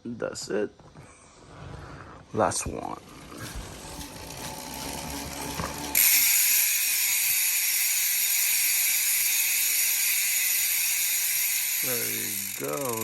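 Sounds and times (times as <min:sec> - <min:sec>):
bicycle freehub buzzing: 0:02.9 - 0:13.0.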